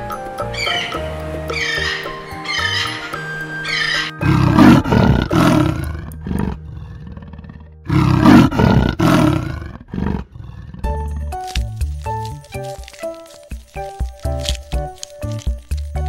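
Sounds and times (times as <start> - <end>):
leopard rasping sawing call: 0.5 - 5.9.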